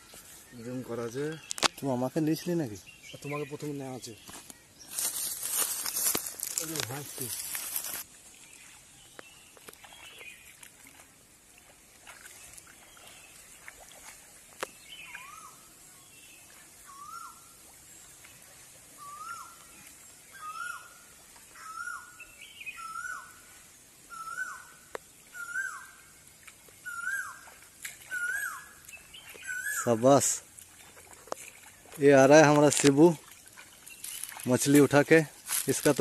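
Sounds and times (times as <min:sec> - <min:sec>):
bird calling: 0:14.7 - 0:15.8, 0:16.8 - 0:17.6, 0:19.0 - 0:23.4, 0:24.1 - 0:26.1, 0:26.8 - 0:30.2.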